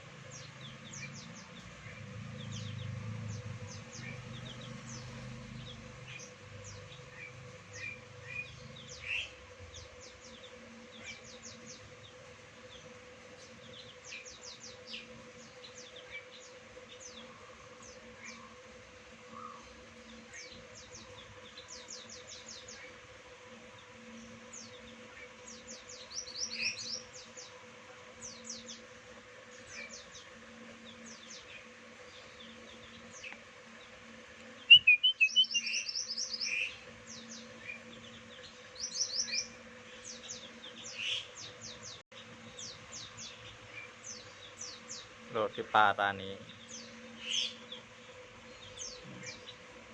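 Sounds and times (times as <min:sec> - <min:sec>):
faint steady hum: 0:00.0 - 0:49.9
wild birds chirping: 0:00.0 - 0:49.9.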